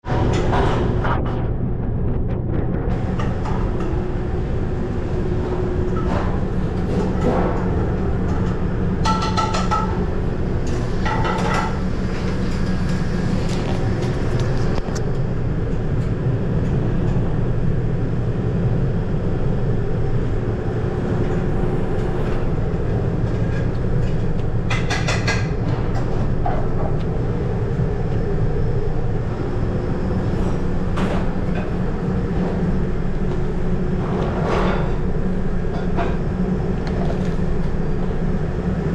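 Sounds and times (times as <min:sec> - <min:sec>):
mechanical hum of ventilation: 0:00.0 - 0:38.9.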